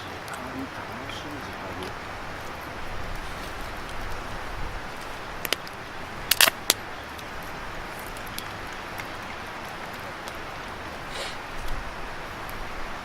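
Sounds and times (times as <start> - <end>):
fire hissing: 10.8 - 12.2.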